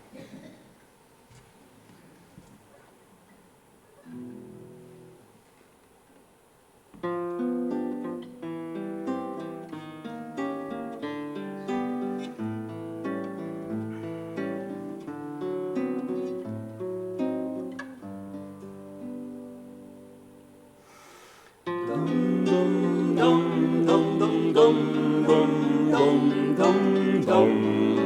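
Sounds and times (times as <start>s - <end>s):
acoustic guitar plucked notes and chords: 7.0s - 20.8s, 21.6s - 28.0s.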